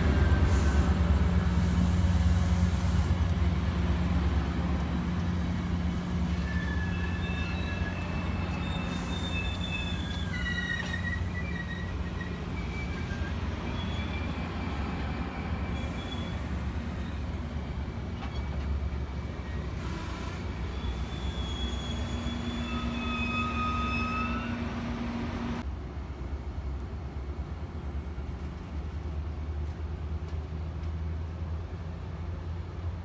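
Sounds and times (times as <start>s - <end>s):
train rumbling: 0.0s - 33.0s
high wheel squeals: 6.0s - 17.4s, 19.4s - 25.6s.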